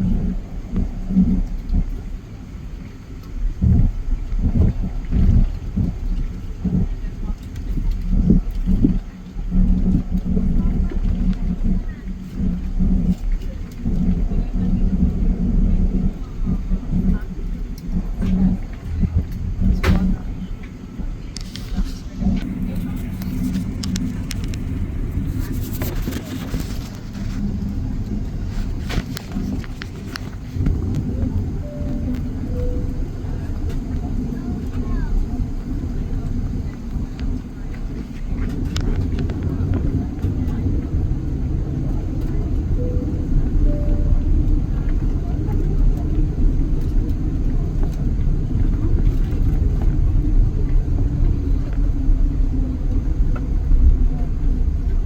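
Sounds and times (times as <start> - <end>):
aircraft cabin engine drone: 0.0 - 55.0
faint clicks and rattles: 0.8 - 32.3, 33.0 - 42.7
light clicks and rattles: 17.0 - 32.2.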